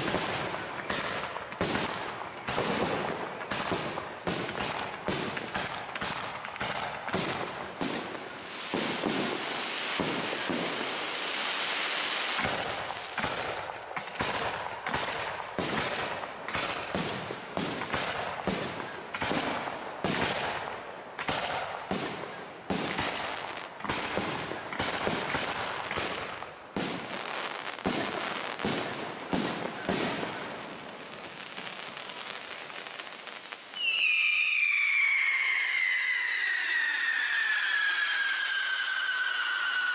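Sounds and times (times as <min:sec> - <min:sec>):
firework bangs: 0:00.0 - 0:39.9
firework crackling: 0:00.0 - 0:39.9
high falling whistle: 0:33.8 - 0:39.9.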